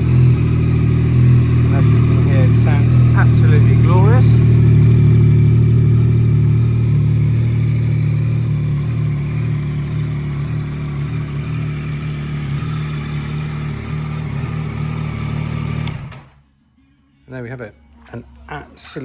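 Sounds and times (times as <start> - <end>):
motorcycle engine idling: 0.0 - 16.4.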